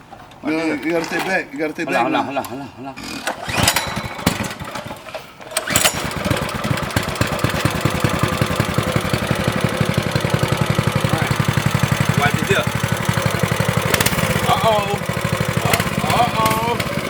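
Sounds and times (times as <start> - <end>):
small engine idling: 3.4 - 17.0.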